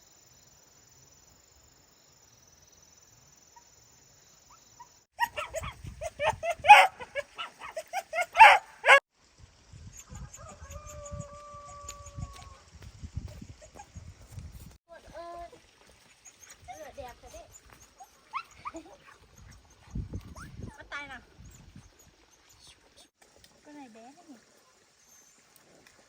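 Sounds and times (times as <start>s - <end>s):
puppies yelping and barking: 5.2s - 9.0s, 17.8s - 20.5s.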